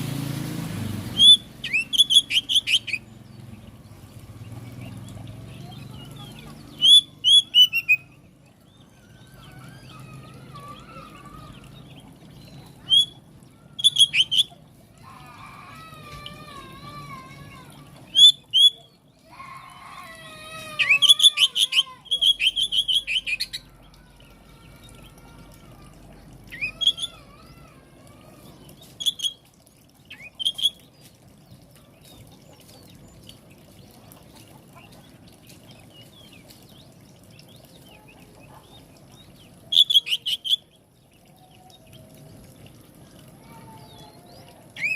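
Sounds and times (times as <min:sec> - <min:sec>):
bird singing whistled notes: 0:01.2 - 0:03.0.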